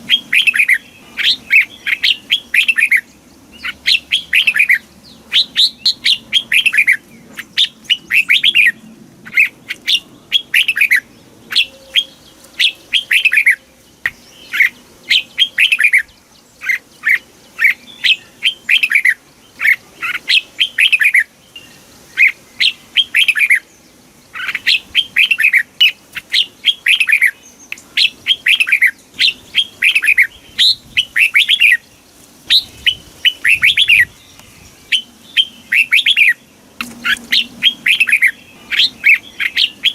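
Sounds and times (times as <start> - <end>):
bulbul singing whistled notes: 0.0 - 23.7, 32.5 - 39.9.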